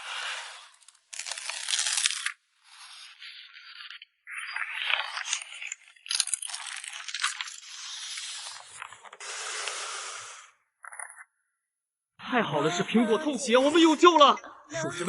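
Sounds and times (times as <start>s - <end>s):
plastic sleeves rustling and crinkling: 0.1s - 9.2s.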